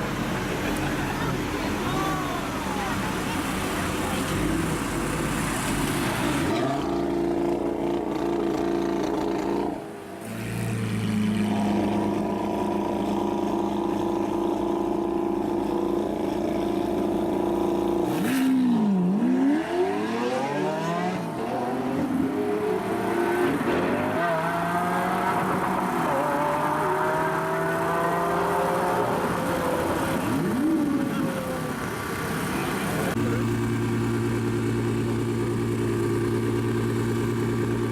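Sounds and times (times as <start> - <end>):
sports car engine revving: 4.1 - 30.8.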